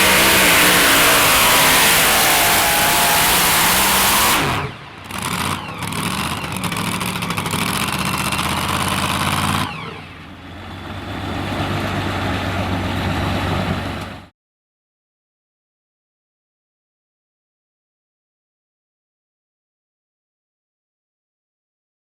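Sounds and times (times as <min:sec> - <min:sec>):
truck engine with high whine: 0:00.0 - 0:14.3.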